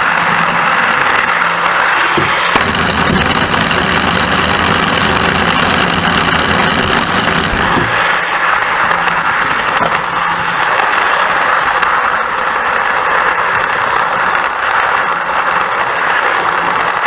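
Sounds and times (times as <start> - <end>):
deep rumble: 2.6 - 8.1.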